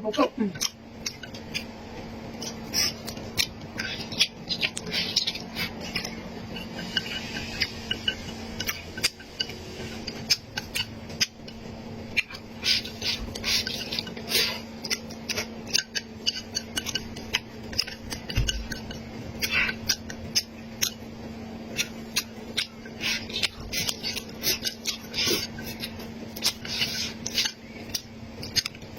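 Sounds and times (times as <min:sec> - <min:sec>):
steady low hum: 0:00.0 - 0:28.9
crunchy chewing and biting: 0:00.6 - 0:11.4, 0:21.7 - 0:28.9.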